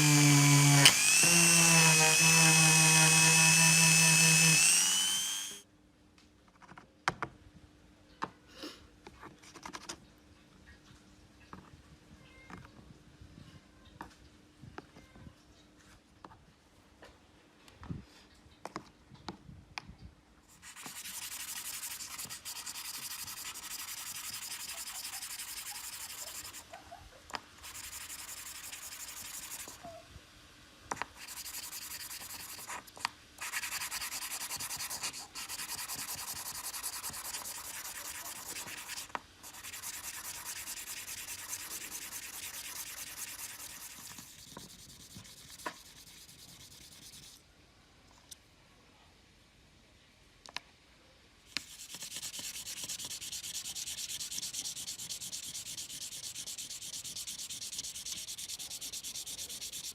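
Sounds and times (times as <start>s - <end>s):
sanding on metal case: 20.6s - 26.7s, 27.6s - 29.8s, 31.1s - 47.4s, 51.6s - 59.9s.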